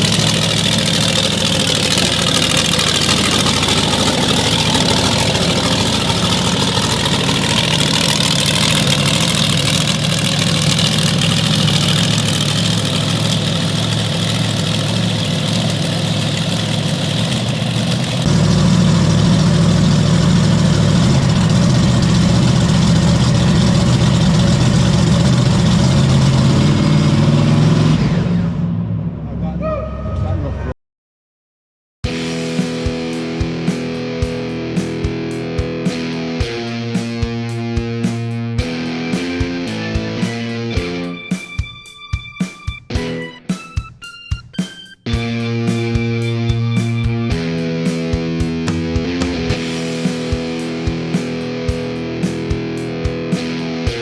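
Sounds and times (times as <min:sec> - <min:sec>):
large truck engine idling: 0:00.0 - 0:27.8.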